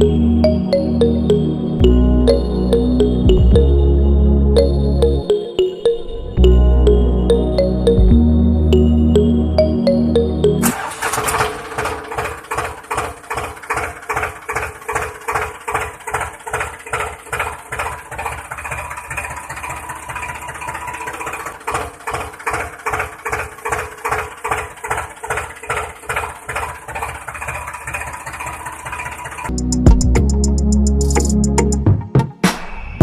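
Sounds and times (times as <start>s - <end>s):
small motor knocking steadily: 11.4s - 29.5s.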